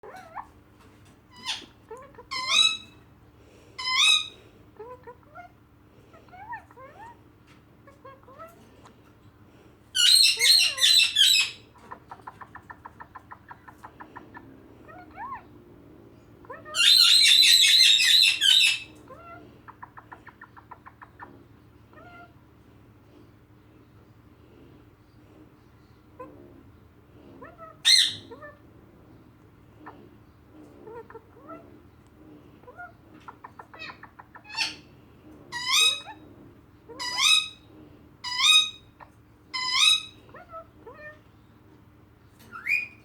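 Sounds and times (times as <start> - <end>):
parrot squawks and calls: 0.0 - 0.6, 1.3 - 3.1, 3.8 - 7.2, 10.0 - 15.5, 16.4 - 22.4, 27.4 - 28.7, 29.8 - 31.8, 32.6 - 34.9, 35.5 - 41.3, 42.4 - 43.0
parrot screeching: 1.4 - 3.0, 3.8 - 4.4, 10.0 - 11.6, 16.5 - 18.9, 27.5 - 28.6, 33.6 - 34.8, 35.5 - 36.2, 36.9 - 37.6, 38.3 - 38.9, 39.5 - 41.2.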